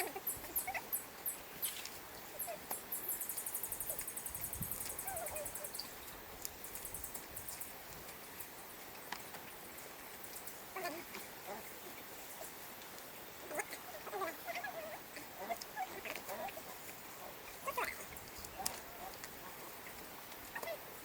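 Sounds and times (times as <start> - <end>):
small animals squeaking: 0.0 - 6.0.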